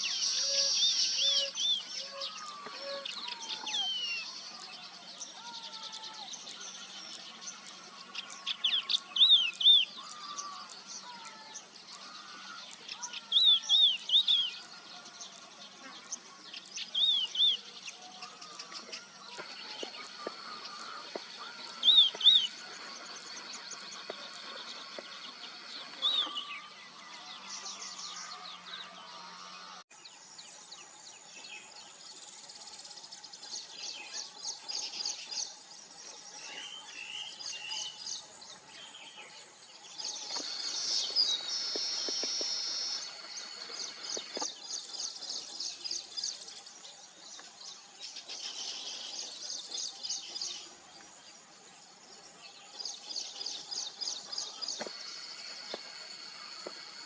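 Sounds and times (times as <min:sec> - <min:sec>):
birds chattering and trilling: 0:00.0 - 0:57.0.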